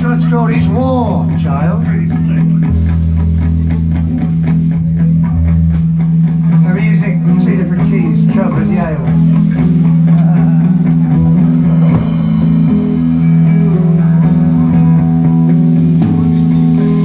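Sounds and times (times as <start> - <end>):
bass guitar: 0.0 - 17.0
electric guitar chords: 0.0 - 17.0
drum hits: 8.1 - 17.0.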